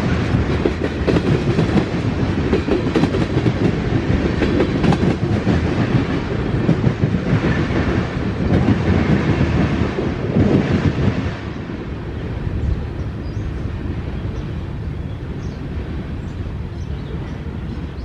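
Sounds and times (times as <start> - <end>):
freight train wheels clacking: 0.0 - 11.9.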